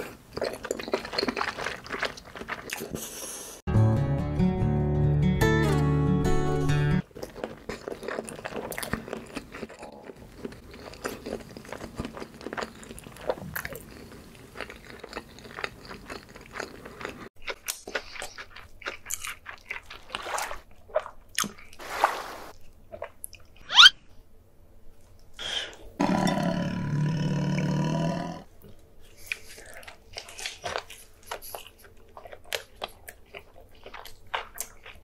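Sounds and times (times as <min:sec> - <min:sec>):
crunchy chewing of food: 0:00.0 - 0:03.2, 0:07.0 - 0:23.7, 0:28.2 - 0:35.0.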